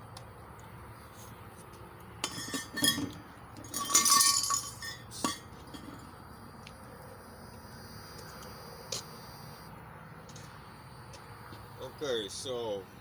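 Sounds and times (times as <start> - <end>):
metal clinking and rattling: 2.2 - 6.1.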